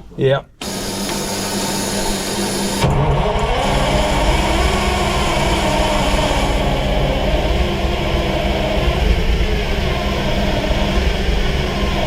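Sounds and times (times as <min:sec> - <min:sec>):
diesel engine cranking on starter: 0:00.6 - 0:12.0.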